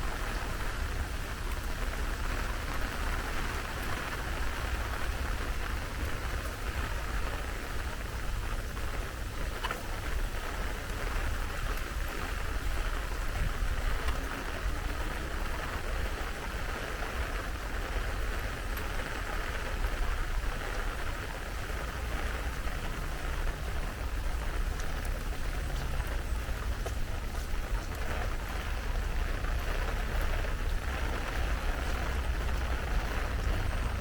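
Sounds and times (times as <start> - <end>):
heavy rain falling: 0.0 - 34.0
raindrop ticks: 0.0 - 34.0
low rumble: 22.4 - 34.0.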